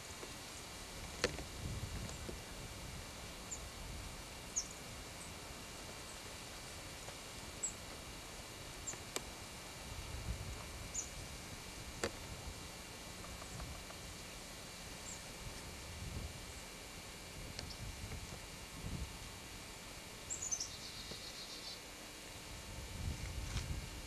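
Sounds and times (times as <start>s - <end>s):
steady background hiss: 0.0s - 24.0s
small birds chirping: 4.5s - 5.4s, 8.8s - 9.2s, 10.9s - 11.2s, 14.9s - 15.4s, 17.6s - 18.0s, 20.2s - 21.9s.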